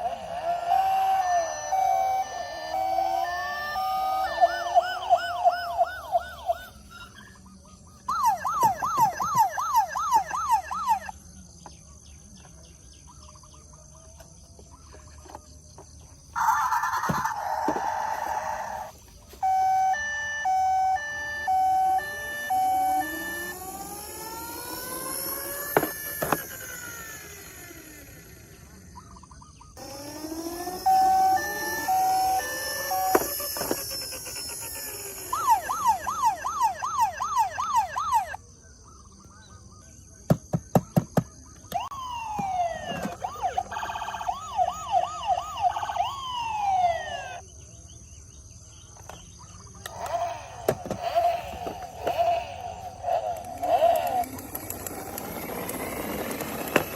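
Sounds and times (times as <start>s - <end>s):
toy electronic sirens: 0.0s - 11.3s, 16.3s - 29.1s, 29.7s - 38.4s, 41.4s - 47.5s, 49.8s - 56.9s.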